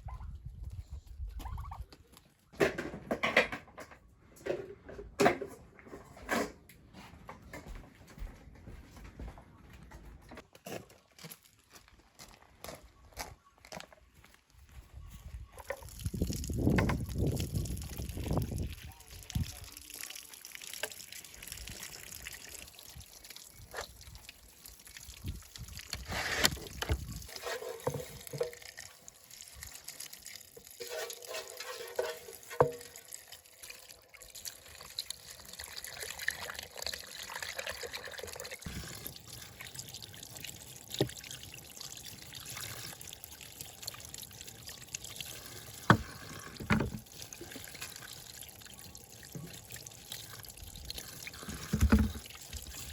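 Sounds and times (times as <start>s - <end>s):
water pouring and trickling: 14.6s - 52.9s.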